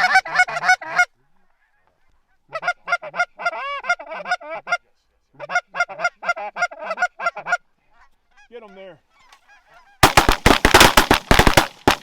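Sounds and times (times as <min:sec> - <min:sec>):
goose honking: 0:09.1 - 0:10.3.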